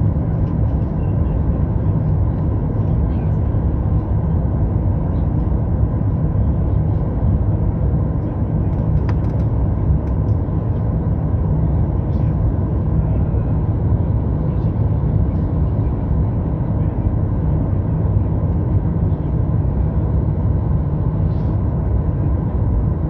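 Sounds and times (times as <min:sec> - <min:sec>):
airplane cabin roar: 0:00.0 - 0:23.0.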